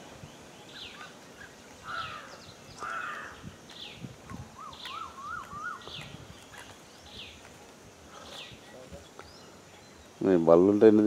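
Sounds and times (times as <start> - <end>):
birds chirping: 0.0 - 11.0
harsh bird calls: 0.4 - 10.4
bird trill: 4.6 - 7.4.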